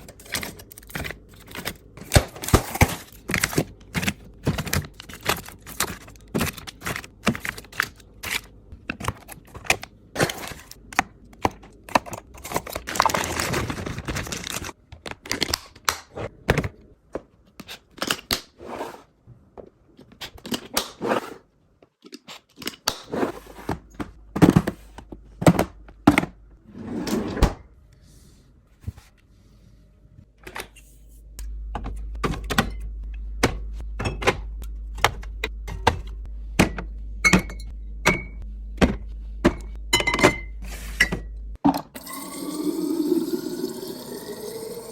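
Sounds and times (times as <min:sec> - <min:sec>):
packages tapping and clicking: 0:00.0 - 0:16.7
packaging rustling: 0:12.3 - 0:15.5.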